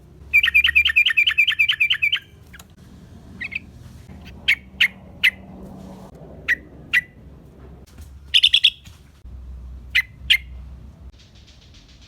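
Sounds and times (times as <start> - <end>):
bulbul chirping: 0.3 - 2.7, 3.4 - 5.4, 8.3 - 8.9.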